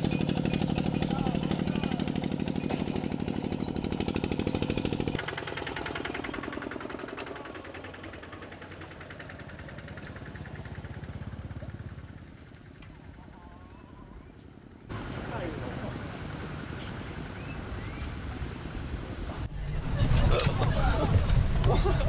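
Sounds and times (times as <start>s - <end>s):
small motorbike engine chugging: 0.0s - 15.1s.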